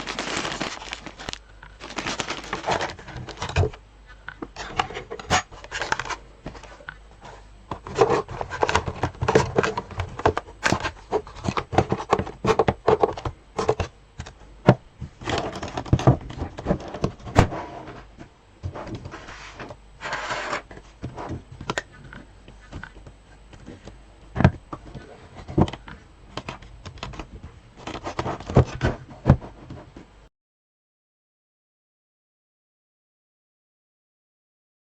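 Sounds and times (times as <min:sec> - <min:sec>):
scraping rustle: 0:00.0 - 0:03.4.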